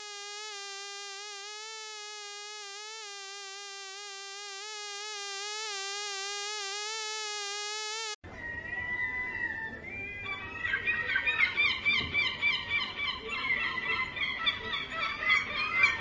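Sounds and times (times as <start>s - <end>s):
honeybees buzzing: 0.0s - 8.2s.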